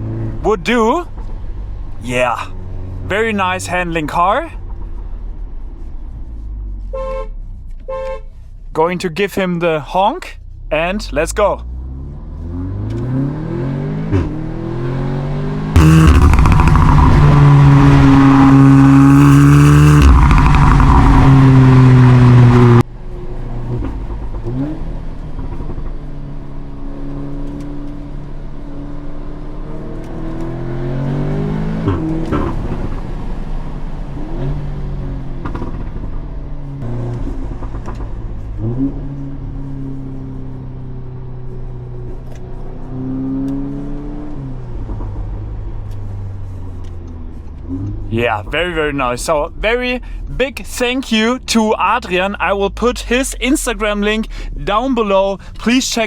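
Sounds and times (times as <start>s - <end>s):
car engine accelerating hard: 11.6s - 56.0s
heavy rushing noise: 15.8s - 22.8s.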